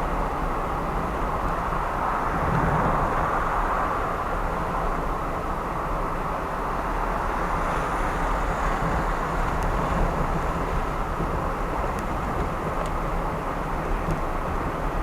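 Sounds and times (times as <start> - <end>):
tyre and road noise: 6.3 - 15.0.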